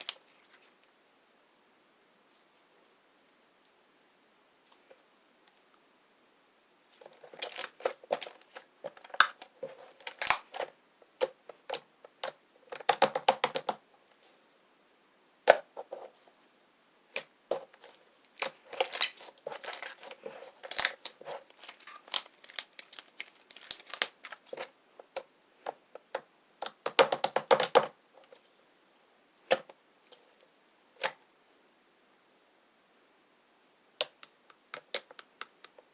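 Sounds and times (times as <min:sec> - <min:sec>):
slime clicking and popping: 0:10.1 - 0:10.6.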